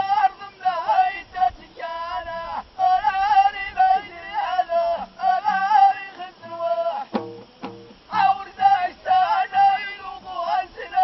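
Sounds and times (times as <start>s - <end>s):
group singing in unison: 0.0s - 11.0s
sharp drum beats: 7.1s - 8.3s.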